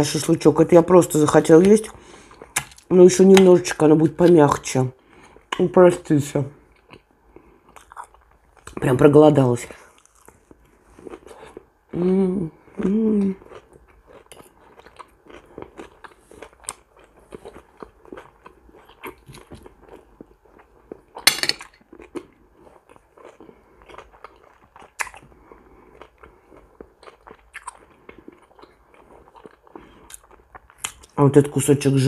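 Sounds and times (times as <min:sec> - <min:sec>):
person chewing food: 0:01.6 - 0:03.6, 0:06.6 - 0:08.8, 0:09.8 - 0:12.0, 0:12.7 - 0:31.2
cutlery clicking on a plate: 0:21.3 - 0:21.8.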